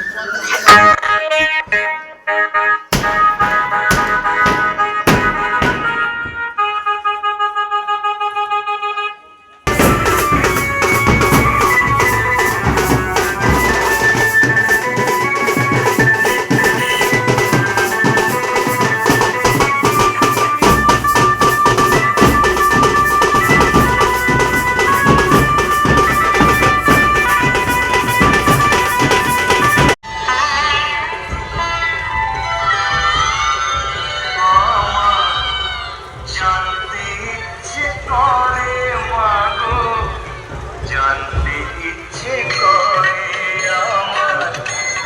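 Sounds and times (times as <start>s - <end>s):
loud dance music: 2.9s - 6.1s, 9.7s - 30.0s.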